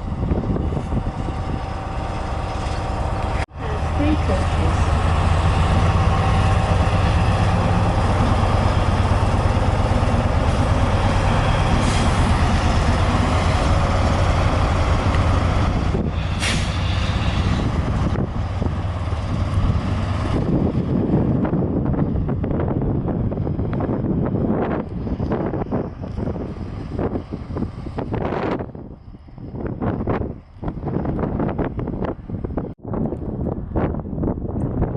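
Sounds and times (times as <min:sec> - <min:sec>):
diesel train engine humming: 0:00.0 - 0:34.9
brief hiss: 0:16.2 - 0:17.4.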